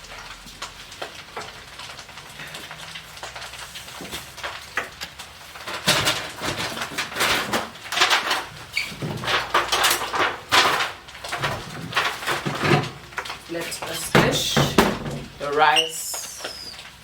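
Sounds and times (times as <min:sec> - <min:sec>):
containers and cupboard doors knocking: 0:13.9 - 0:15.5.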